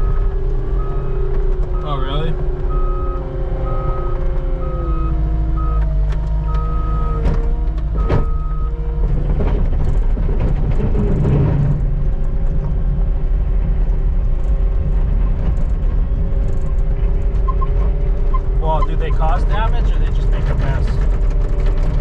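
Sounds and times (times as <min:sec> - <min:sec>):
reversing alarm beep: 0:00.0 - 0:01.2, 0:02.7 - 0:05.9, 0:06.5 - 0:07.2, 0:08.0 - 0:08.7
skid steer engine droning: 0:00.0 - 0:22.0.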